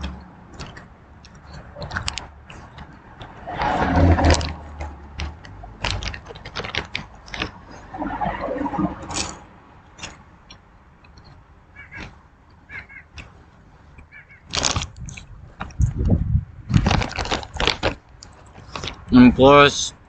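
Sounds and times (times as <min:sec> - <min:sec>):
crunching and chewing popcorn: 0:14.5 - 0:16.0, 0:16.8 - 0:19.1.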